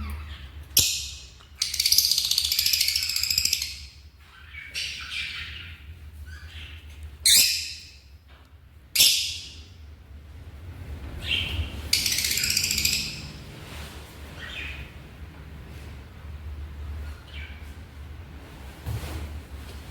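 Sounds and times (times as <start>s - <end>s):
lovebirds squawking and screeching: 11.2s - 13.4s.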